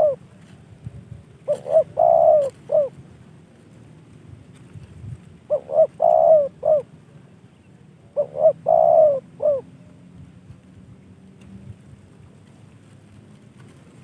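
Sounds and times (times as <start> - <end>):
dove cooing: 0.0 - 0.2, 1.4 - 3.0, 5.5 - 6.9, 8.1 - 10.0.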